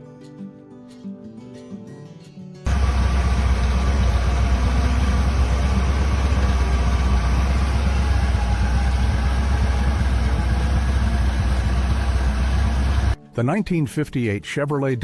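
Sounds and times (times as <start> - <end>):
car engine idling: 2.7 - 13.2.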